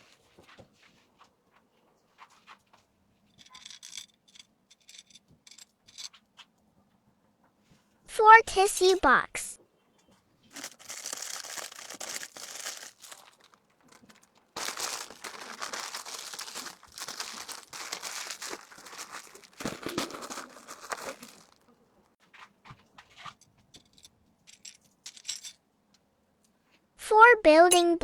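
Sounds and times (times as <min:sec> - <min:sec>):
plastic packaging crinkling: 0:10.5 - 0:21.7.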